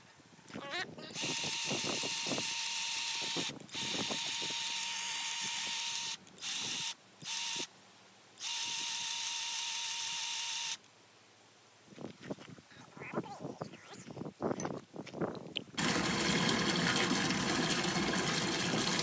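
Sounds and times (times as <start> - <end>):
grease gun motor whining: 1.1 - 7.7, 8.4 - 10.9, 15.8 - 19.0.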